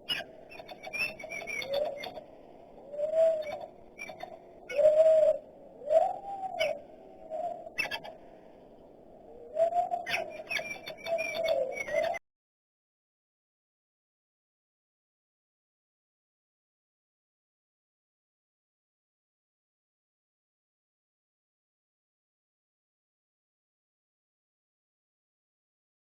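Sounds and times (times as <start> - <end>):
dove cooing: 0.1 - 8.2, 9.3 - 12.2.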